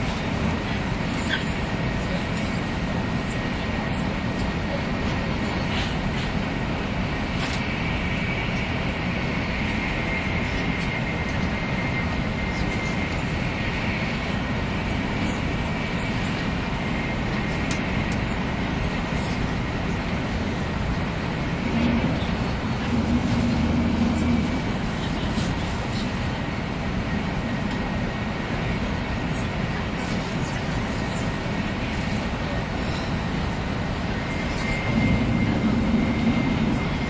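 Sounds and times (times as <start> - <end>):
faint high whine: 7.2 - 37.0
train wheels rumbling on rails: 16.1 - 37.0
low hum: 21.3 - 26.1, 34.1 - 37.0.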